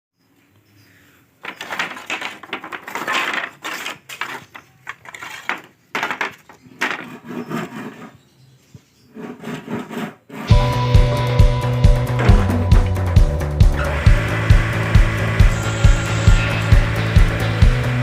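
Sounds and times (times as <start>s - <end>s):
wood boards knocking and clattering: 1.4s - 7.4s, 12.1s - 13.1s
music with steady beat: 10.5s - 18.0s.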